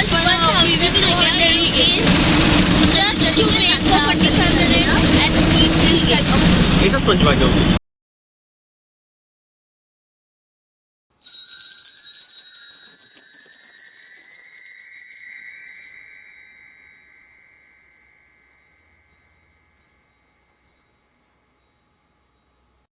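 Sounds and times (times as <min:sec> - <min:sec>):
high chime shimmer rising: 0:11.2 - 0:22.9
scattered tinkles: 0:11.2 - 0:22.9.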